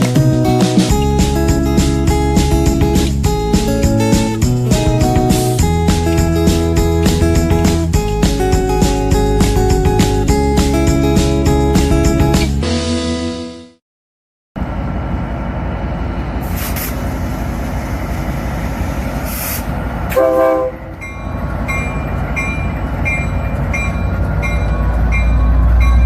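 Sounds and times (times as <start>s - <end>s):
short electronic horn: 20.1s - 21.0s.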